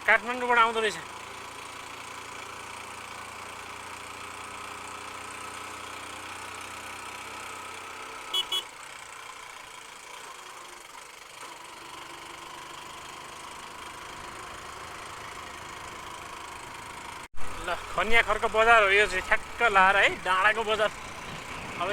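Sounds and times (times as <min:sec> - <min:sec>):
motorcycle engine running: 0:00.0 - 0:21.9
motorcycle horn beeps: 0:08.3 - 0:08.8.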